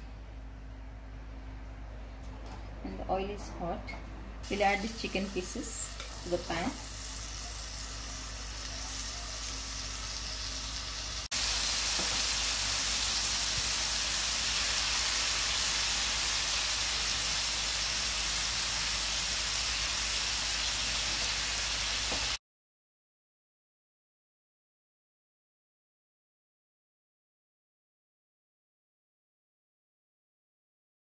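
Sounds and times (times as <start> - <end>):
chicken sizzling in a frying pan: 4.5 - 22.4.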